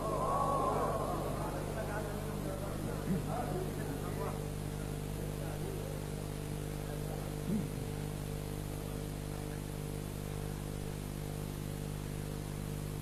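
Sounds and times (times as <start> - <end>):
faint voice: 0.0 - 3.6
electrical hum with hiss: 0.0 - 13.0.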